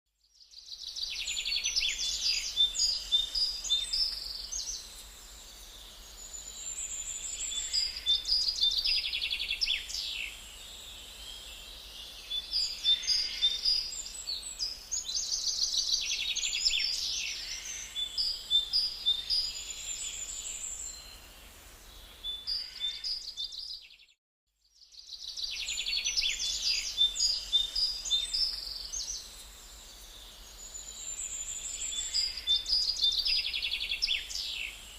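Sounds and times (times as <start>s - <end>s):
birds chirping and singing: 0.7s - 21.2s, 25.0s - 34.9s.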